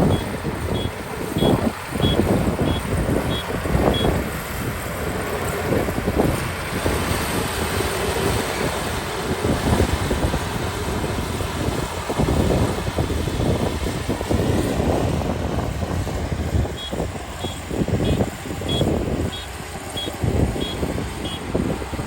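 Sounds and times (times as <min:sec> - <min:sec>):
reversing alarm beeps: 0:00.0 - 0:04.2, 0:16.8 - 0:21.5
combine harvester running: 0:00.0 - 0:22.0.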